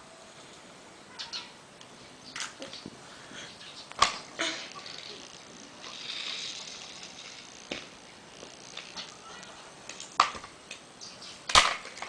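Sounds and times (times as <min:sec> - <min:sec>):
toy rattle: 0:04.6 - 0:07.9
plastic toy clicks and knocks: 0:11.5 - 0:12.0.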